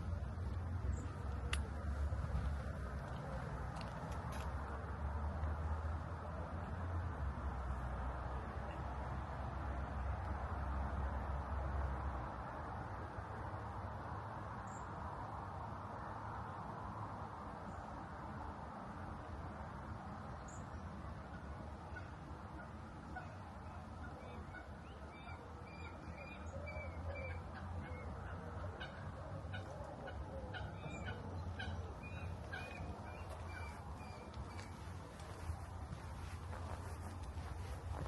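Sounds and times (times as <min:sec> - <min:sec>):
birds calling: 0:21.9 - 0:38.0.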